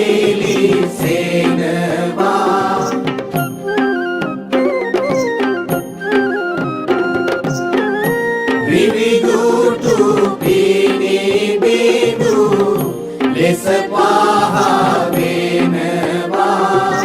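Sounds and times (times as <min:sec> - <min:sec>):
chant-like singing: 0:00.0 - 0:03.5, 0:08.6 - 0:17.0
instrumental music: 0:00.0 - 0:17.0.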